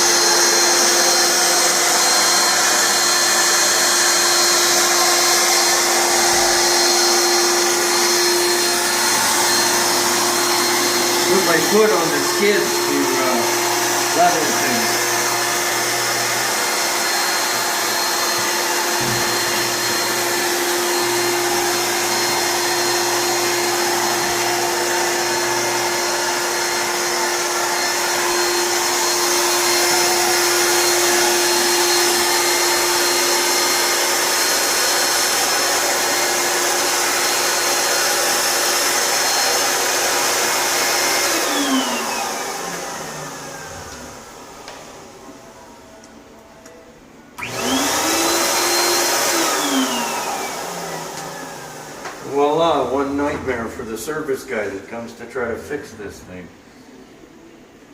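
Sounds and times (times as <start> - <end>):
blower running: 0.0 - 55.5.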